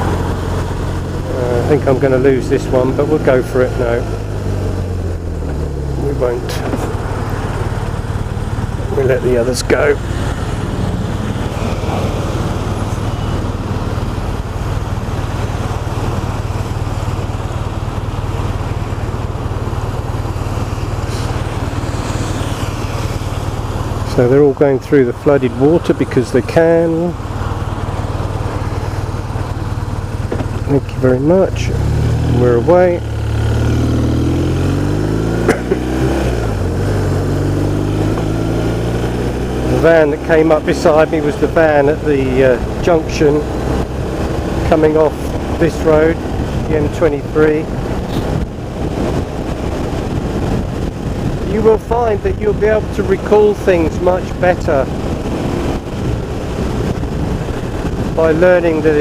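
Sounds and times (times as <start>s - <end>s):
motorcycle engine idling: 0.0s - 24.7s
motorcycle engine accelerating: 0.0s - 59.0s
road traffic: 0.0s - 59.0s.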